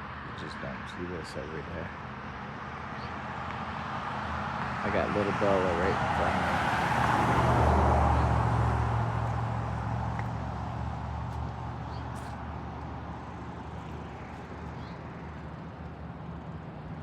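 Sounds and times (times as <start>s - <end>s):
road noise rushing: 0.0s - 17.0s
vehicle engine humming: 0.0s - 17.0s.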